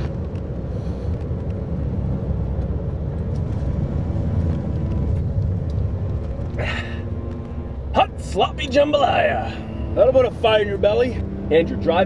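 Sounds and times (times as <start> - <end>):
car driving rumble: 0.0 - 12.0.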